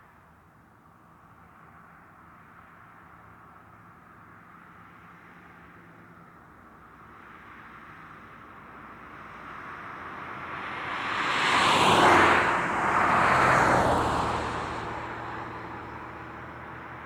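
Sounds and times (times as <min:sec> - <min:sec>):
steady traffic noise: 0:01.0 - 0:17.0
vehicles passing close by: 0:07.2 - 0:17.0.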